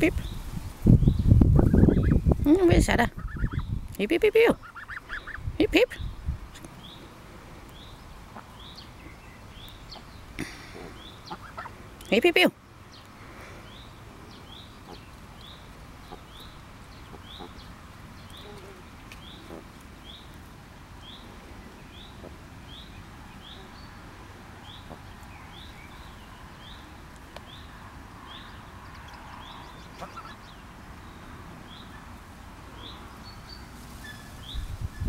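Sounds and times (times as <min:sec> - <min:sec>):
small bird chirping: 0:00.2 - 0:02.4, 0:03.1 - 0:03.8, 0:12.9 - 0:20.4.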